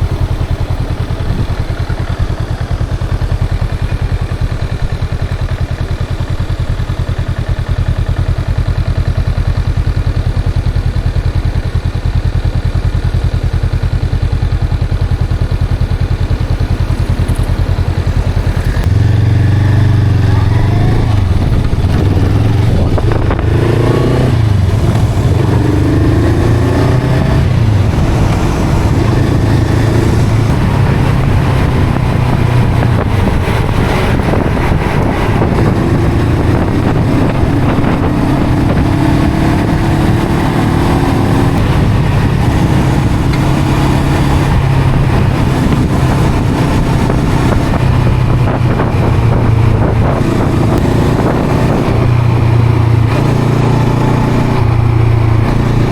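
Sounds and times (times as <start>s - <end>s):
motorcycle engine and exhaust: 0.0s - 55.9s.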